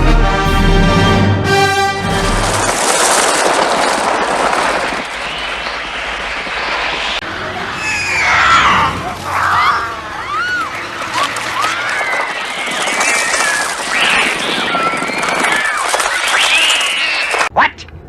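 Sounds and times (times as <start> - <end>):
dense rushing noise: 1.8 - 17.5
high screeching cries: 7.7 - 10.7.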